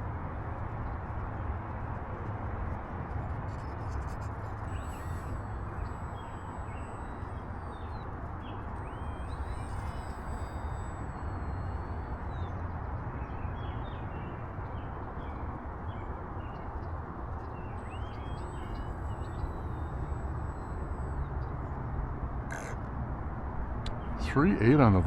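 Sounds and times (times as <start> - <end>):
faint bird chirps: 2.8 - 21.8.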